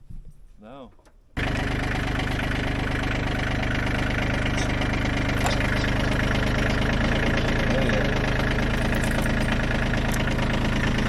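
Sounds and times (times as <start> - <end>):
diesel tractor engine idling: 1.0 - 11.0.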